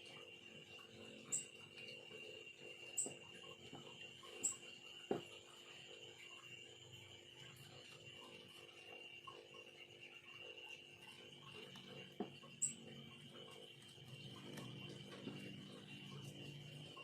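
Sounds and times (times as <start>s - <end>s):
high-pitched hum: 9.2s - 17.0s.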